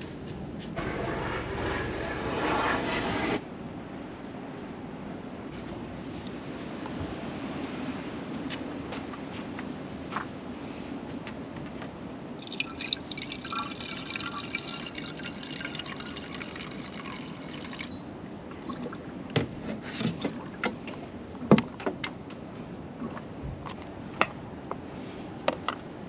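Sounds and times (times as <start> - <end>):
coolant trickling pour: 12.4 - 18.0.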